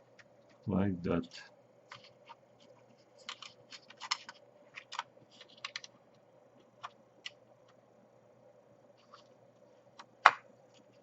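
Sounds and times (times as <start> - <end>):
faint steady hum: 0.0 - 11.0
plastic parts clicking and tapping: 1.9 - 2.4, 3.2 - 6.0.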